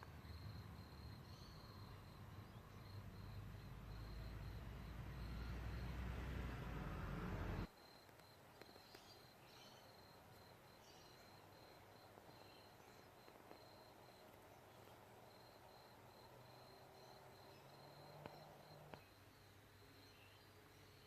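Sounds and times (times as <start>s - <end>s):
faint high insect chirping: 0.0s - 21.0s
faint ticks: 12.0s - 14.4s, 17.9s - 19.1s.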